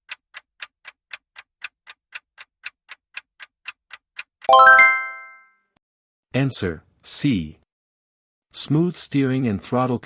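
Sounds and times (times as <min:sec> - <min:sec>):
timer clock ticking: 0:00.0 - 0:05.0
bright multi-tone chime: 0:04.5 - 0:05.4.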